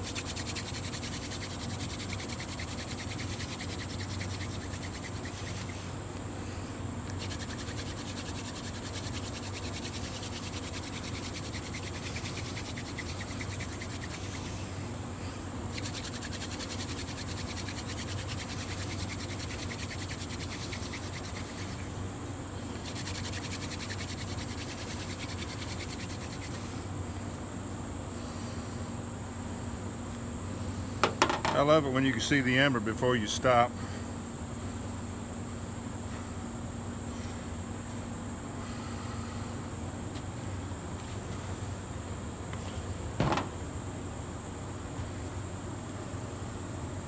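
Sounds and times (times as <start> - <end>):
hand drill spindle scraping wood: 0.0 - 5.8, 7.2 - 14.6, 15.7 - 21.9, 22.7 - 26.6.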